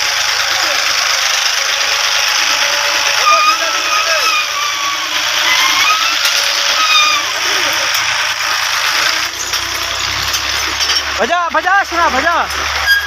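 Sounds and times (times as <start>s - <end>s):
faint voices calling out: 0.0s - 10.1s
tractor engine running: 0.0s - 13.0s.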